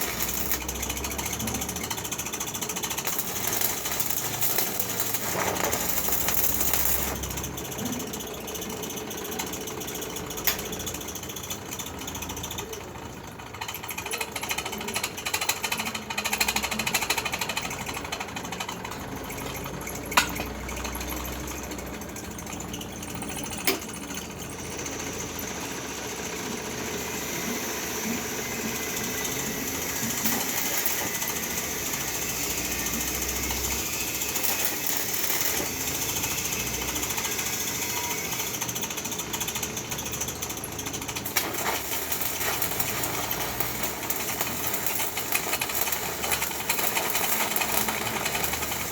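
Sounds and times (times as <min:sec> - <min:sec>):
electric arc welding crackling: 0:00.0 - 0:07.5, 0:29.0 - 0:37.5, 0:41.1 - 0:48.9.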